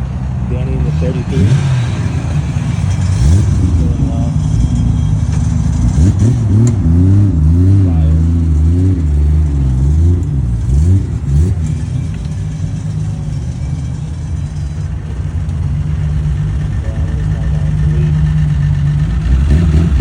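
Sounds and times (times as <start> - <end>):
car engine at low revs: 0.0 - 20.0.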